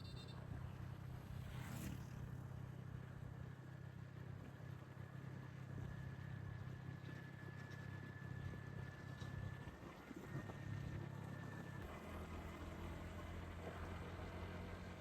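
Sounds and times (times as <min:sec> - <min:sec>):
wind and road noise: 0:00.0 - 0:03.4.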